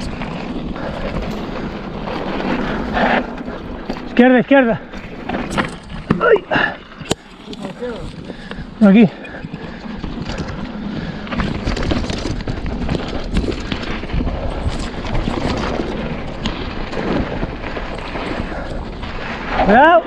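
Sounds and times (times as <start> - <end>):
bike rattling: 0.0 - 20.0
bike tyres rumbling over stones: 0.0 - 20.0
wind buffeting microphone: 0.0 - 20.0.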